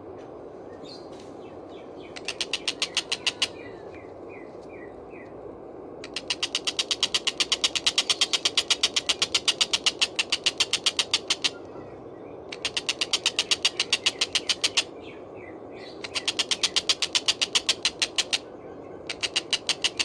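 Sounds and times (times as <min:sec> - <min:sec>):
kingfisher rattling chatter: 0:02.2 - 0:03.6, 0:06.0 - 0:11.7, 0:12.5 - 0:15.0, 0:15.9 - 0:20.0.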